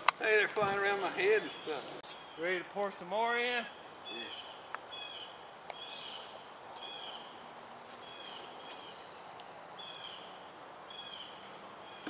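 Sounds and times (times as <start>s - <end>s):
bird calling: 0.6s - 2.7s, 3.6s - 7.4s, 8.0s - 12.0s.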